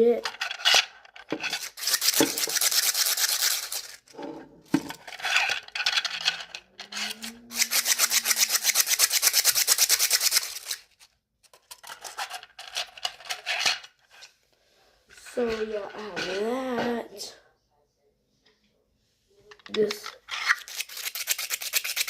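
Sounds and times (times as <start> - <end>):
plastic fidget toy clicking: 6.1 - 10.8.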